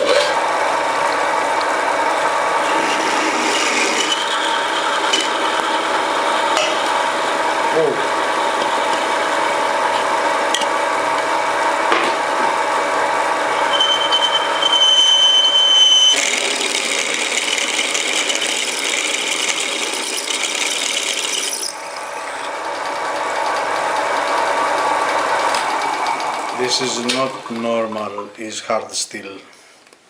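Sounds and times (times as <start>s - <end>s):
machine hum: 0.0s - 28.7s
thin high squeal: 13.6s - 16.2s, 19.9s - 22.6s.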